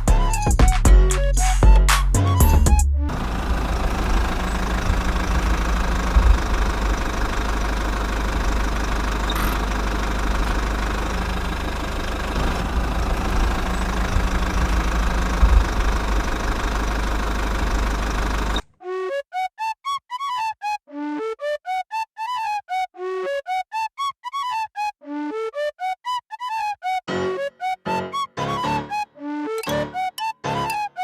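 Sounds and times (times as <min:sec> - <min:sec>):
small engine idling: 0:02.5 - 0:18.6.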